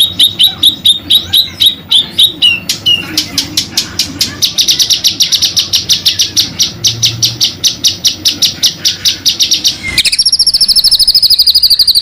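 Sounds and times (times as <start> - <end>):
songbird singing: 0.0 - 12.0
bird rolling trill: 7.5 - 12.0.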